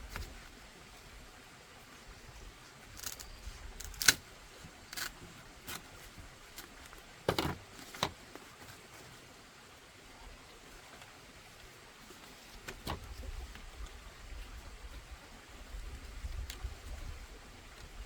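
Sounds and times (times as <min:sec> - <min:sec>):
knocks and clicks of handling: 0:07.3 - 0:08.2.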